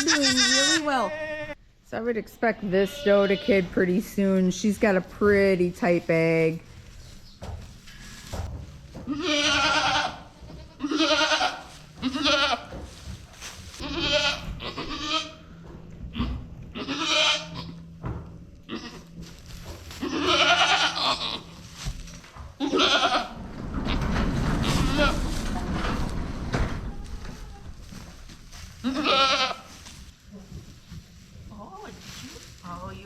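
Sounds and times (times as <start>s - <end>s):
goats bleating: 0.0s - 1.6s, 9.0s - 12.7s, 13.8s - 15.5s, 16.1s - 17.8s, 18.7s - 19.2s, 19.9s - 21.6s, 22.6s - 23.4s, 28.8s - 29.8s.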